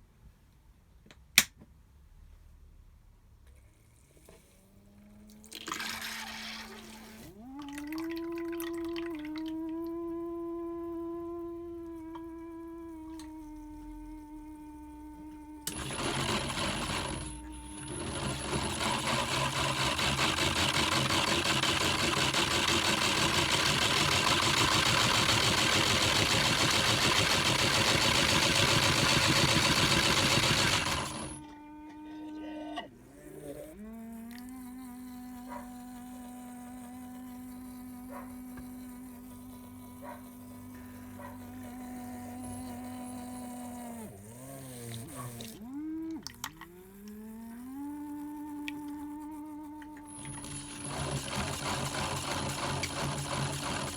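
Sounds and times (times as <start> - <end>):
toy washing machine motors buzzing: 5.0 - 53.9
water pump rushing: 5.5 - 9.5, 15.7 - 31.4, 50.2 - 53.9.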